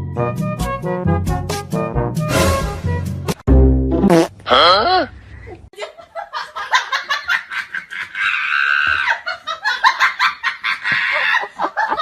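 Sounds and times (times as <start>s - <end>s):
person laughing hard: 6.7s - 12.0s.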